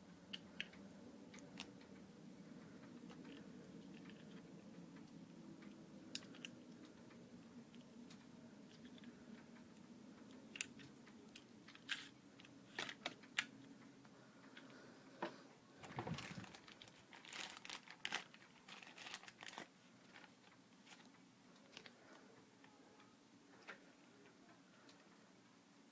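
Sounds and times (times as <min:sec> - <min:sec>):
plastic packaging crinkling: 0:15.8 - 0:21.9.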